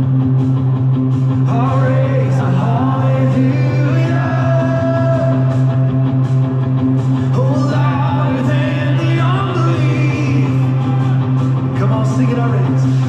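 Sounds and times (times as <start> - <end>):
person singing: 1.4 - 5.9, 7.3 - 13.0
worship band playing: 1.4 - 13.0.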